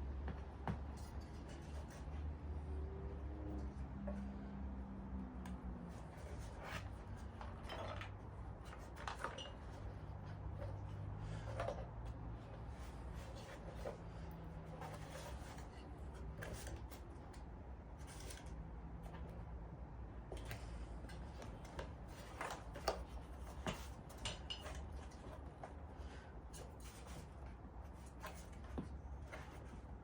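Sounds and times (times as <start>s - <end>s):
parts and packaging handled: 5.9s - 30.0s.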